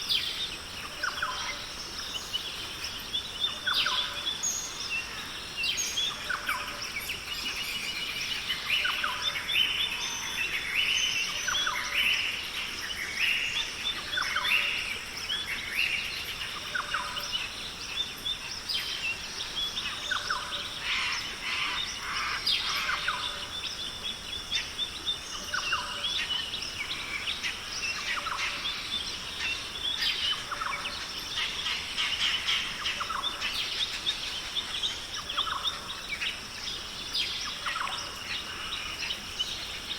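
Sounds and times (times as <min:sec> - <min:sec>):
many birds chirping: 0:00.0 - 0:39.9.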